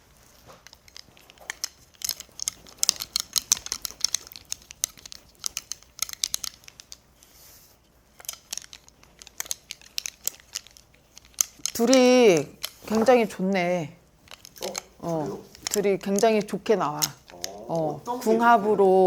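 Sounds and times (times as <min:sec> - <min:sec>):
small clicks and crinkling rustles: 0:00.0 - 0:18.4.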